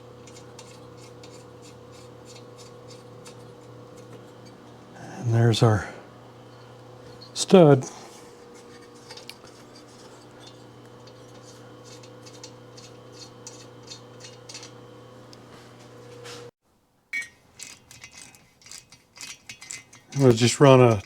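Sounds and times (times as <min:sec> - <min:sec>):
steady electrical hum: 0:00.0 - 0:16.5
metal tools clinking: 0:06.5 - 0:14.8, 0:17.2 - 0:21.0.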